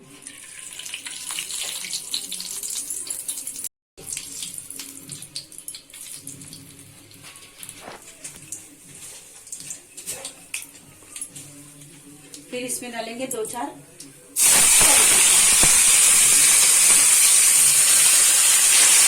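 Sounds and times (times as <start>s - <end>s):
crackling pops: 14.4s - 18.0s
ghee sizzling in a pan: 14.4s - 19.0s.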